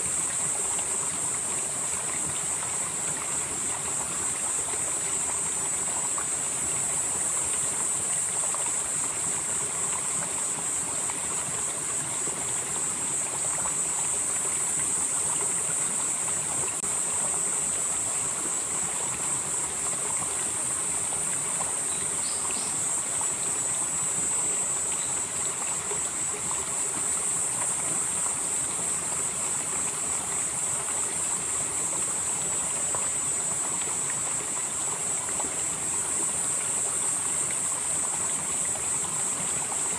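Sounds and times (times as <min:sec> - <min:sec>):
stream flowing over rocks: 0:00.0 - 0:39.9
high-pitched insect chorus: 0:12.8 - 0:29.6.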